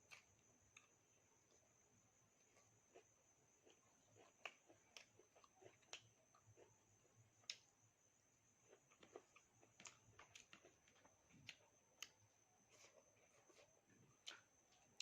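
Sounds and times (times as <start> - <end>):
chewing food: 2.5 - 7.7, 8.6 - 15.0.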